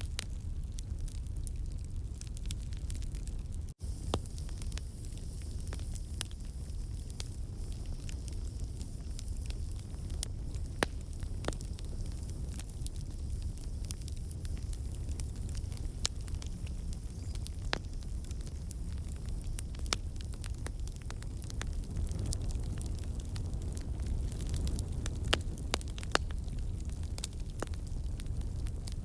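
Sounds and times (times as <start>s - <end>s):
campfire crackling: 0.0s - 29.0s.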